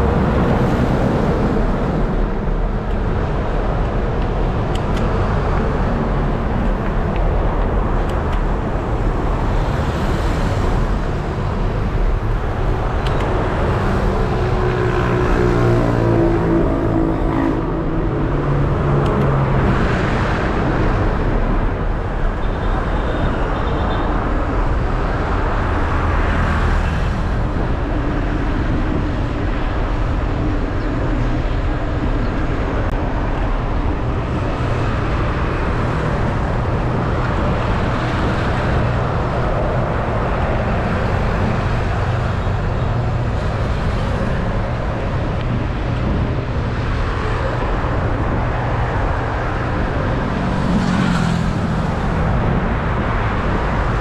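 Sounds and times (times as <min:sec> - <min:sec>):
road traffic rumble: 0:00.0 - 0:54.0
vehicles passing: 0:00.0 - 0:54.0
wind: 0:00.0 - 0:54.0.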